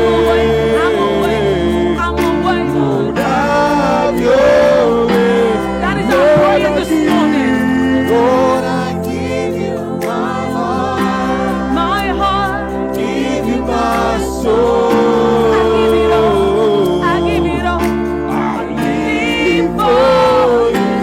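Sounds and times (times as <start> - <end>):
band holding chords: 0.0 - 21.0
voices singing: 0.0 - 21.0.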